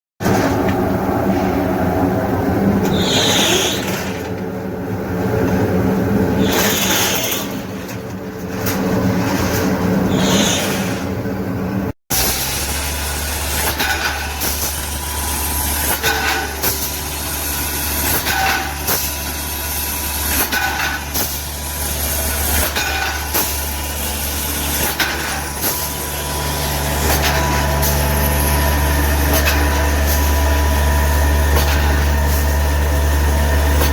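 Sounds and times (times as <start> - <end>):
machine motor hum: 11.0 - 33.9.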